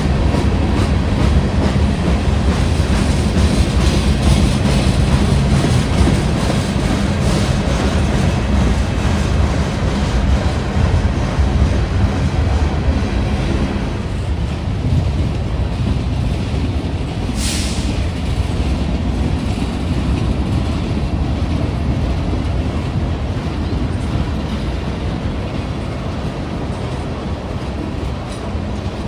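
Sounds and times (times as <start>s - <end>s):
train rumbling past: 0.0s - 29.0s.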